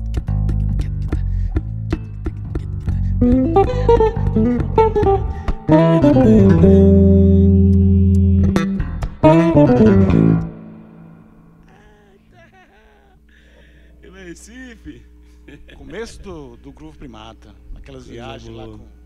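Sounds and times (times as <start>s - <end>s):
electric basses playing: 0.0s - 11.6s.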